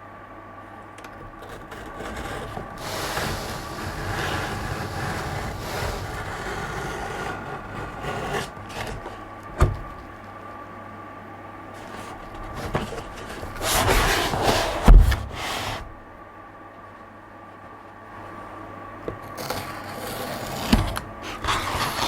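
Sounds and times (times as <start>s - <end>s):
faint steady hum: 0.0s - 22.0s
packaging rustling and scraping: 1.3s - 10.4s, 11.8s - 16.0s, 19.2s - 22.0s
heavy thump: 9.5s - 10.2s, 12.4s - 16.0s.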